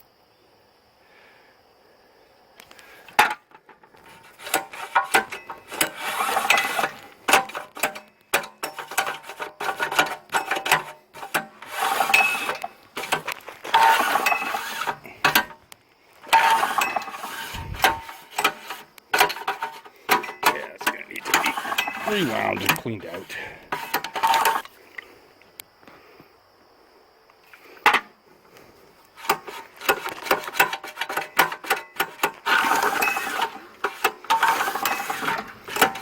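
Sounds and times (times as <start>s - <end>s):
pull-start ratcheting and rattling: 4.0s - 15.5s, 16.3s - 24.7s, 29.2s - 36.0s.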